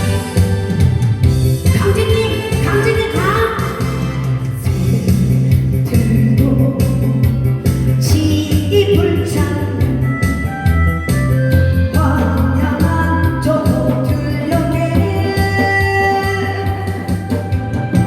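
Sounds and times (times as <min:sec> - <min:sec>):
bass guitar and drum backing track: 0:00.0 - 0:18.0
woman singing: 0:01.7 - 0:07.4, 0:08.0 - 0:10.2, 0:11.9 - 0:17.5.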